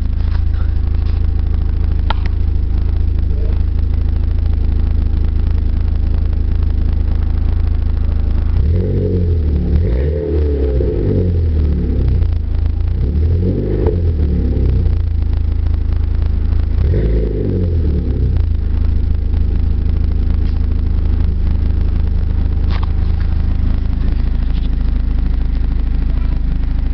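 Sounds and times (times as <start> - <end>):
car engine idling: 0.0 - 26.9
car exhaust revving: 0.0 - 26.9.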